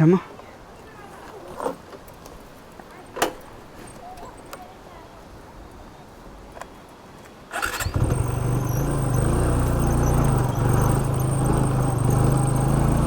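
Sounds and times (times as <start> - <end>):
electric starter burst: 7.5 - 13.0
motorcycle engine idling: 7.6 - 13.0.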